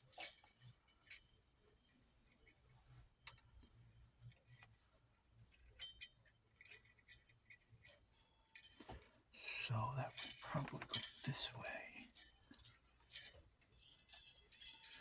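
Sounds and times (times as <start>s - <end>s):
small parts clicking and rattling: 10.2s - 15.0s.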